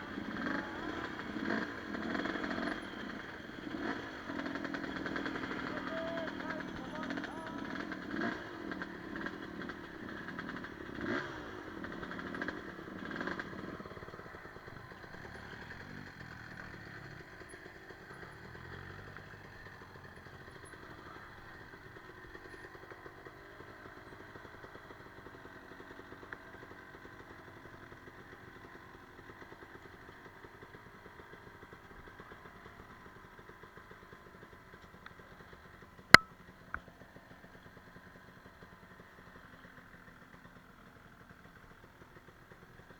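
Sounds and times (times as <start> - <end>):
motorcycle engine revving: 0.0 - 24.7.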